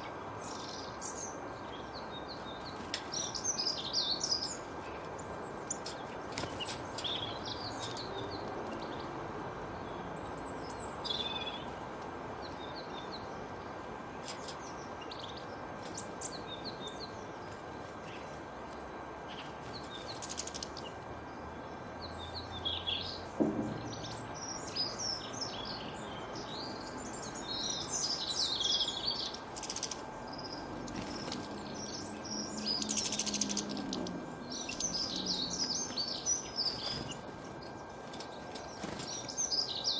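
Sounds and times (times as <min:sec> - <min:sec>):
birds chirping: 0:00.0 - 0:39.9
low thud: 0:23.4 - 0:24.2.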